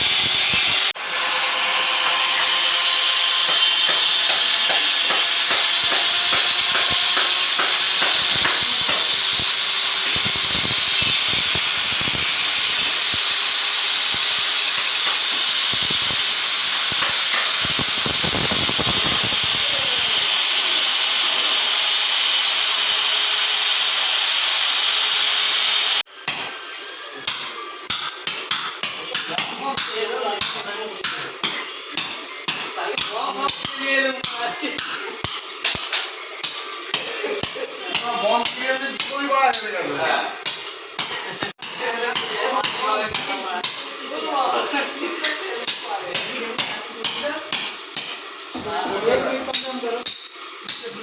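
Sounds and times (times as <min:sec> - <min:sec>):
power tool working on tile: 0:00.0 - 0:27.7.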